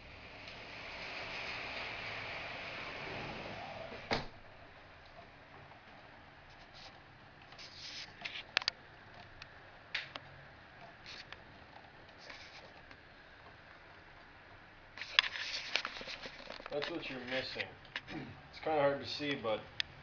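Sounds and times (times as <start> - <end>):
rain hissing: 0.0 - 5.0.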